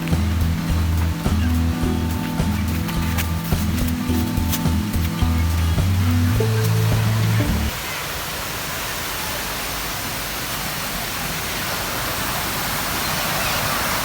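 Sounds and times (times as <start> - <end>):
water rushing down a rocky stream: 0.0 - 14.0.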